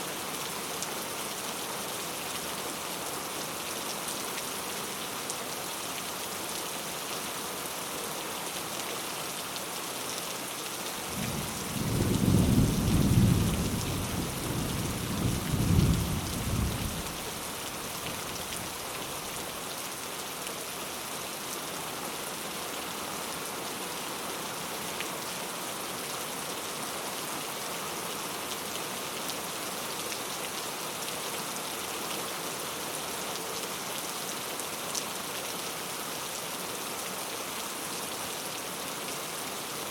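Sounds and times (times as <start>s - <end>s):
steady rain: 0.0s - 39.9s
thunder rumbling: 11.1s - 17.1s.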